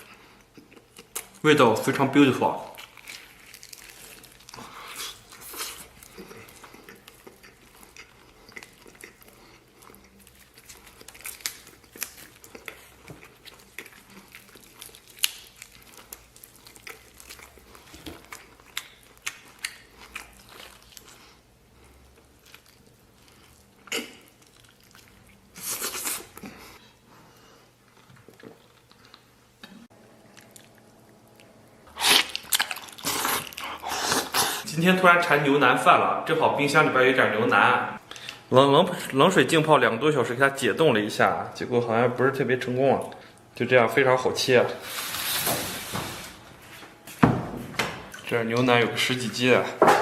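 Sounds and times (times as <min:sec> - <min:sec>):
chewing and biting meat: 0:02.7 - 0:26.6, 0:30.2 - 0:34.7.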